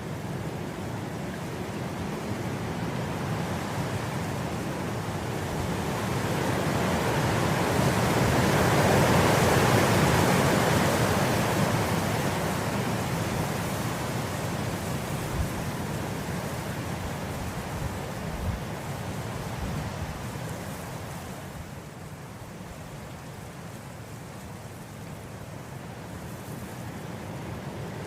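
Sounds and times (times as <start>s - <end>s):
wind blowing through grass: 0.0s - 28.0s.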